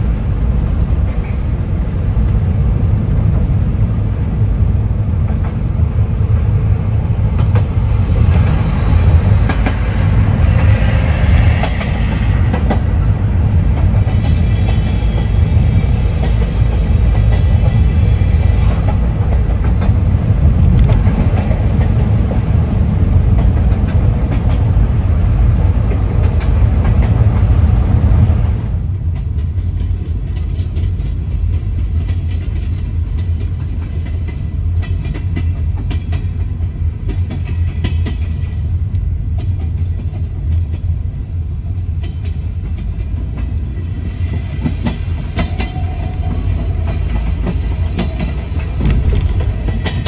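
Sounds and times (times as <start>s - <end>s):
train wheel clatter: 0.0s - 3.8s, 5.1s - 50.0s
car road noise: 0.0s - 28.6s, 46.5s - 50.0s
train rumbling: 0.0s - 50.0s.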